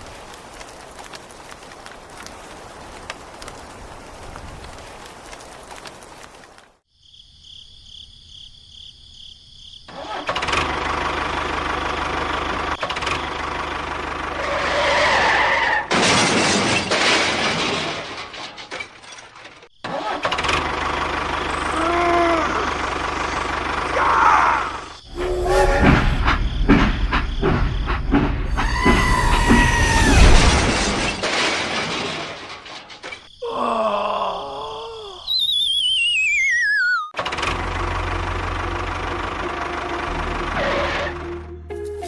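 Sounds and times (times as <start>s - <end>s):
construction vehicle engines: 10.4s - 15.6s, 20.4s - 29.8s, 37.2s - 41.6s.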